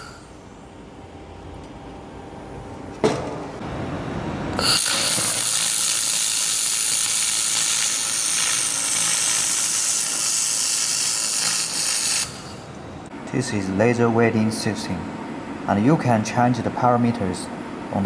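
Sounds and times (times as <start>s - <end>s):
laser welder click: 4.6s - 12.6s
laser welder hiss: 4.6s - 12.7s.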